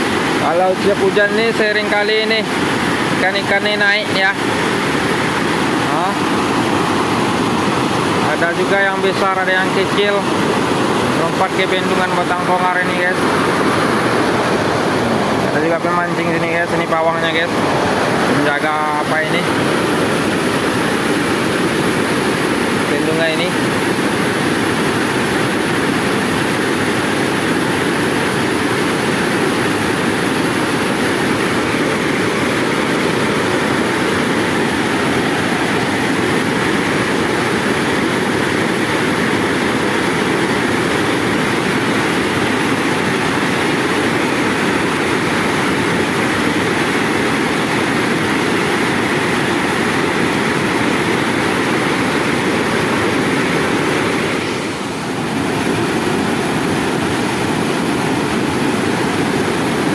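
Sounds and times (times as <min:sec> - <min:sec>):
river pouring over weir: 0:00.0 - 0:59.9.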